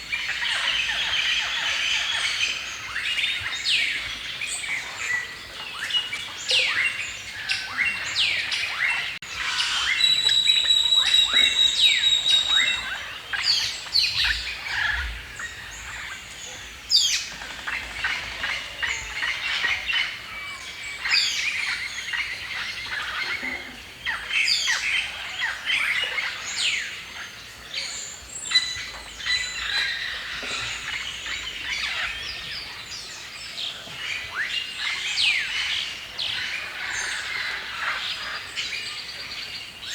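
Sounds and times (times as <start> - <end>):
songbirds chirping and singing: 0.0 - 39.9
rapid even-pitched bird notes: 9.4 - 13.1.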